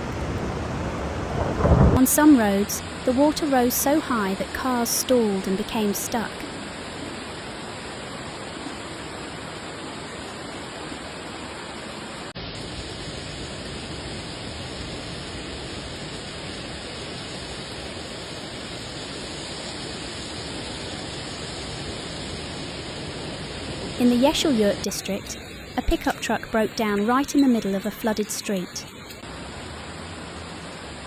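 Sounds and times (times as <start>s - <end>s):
heavy rain: 0.0s - 31.0s
running floodwater: 0.0s - 31.0s.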